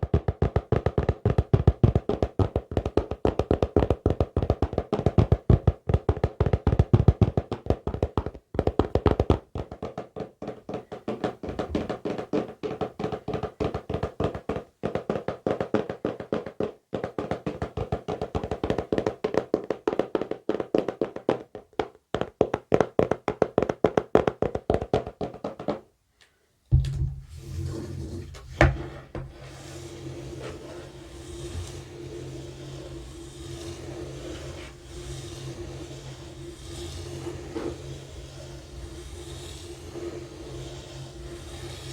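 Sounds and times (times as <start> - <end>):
fingertip tapping on hard object: 0.0 - 25.8.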